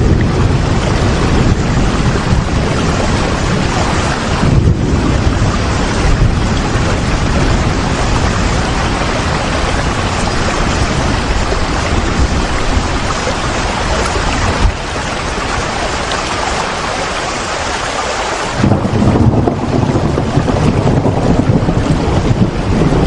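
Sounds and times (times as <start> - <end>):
low rumble: 0.0 - 16.2, 18.6 - 23.0
heavy rain: 0.0 - 23.0.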